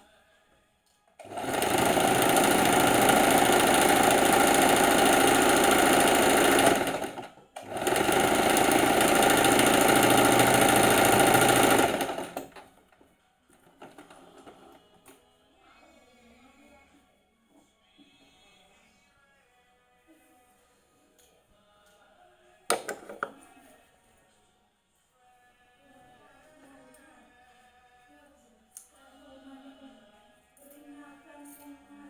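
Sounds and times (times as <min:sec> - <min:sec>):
sewing machine running: 0:01.2 - 0:12.7.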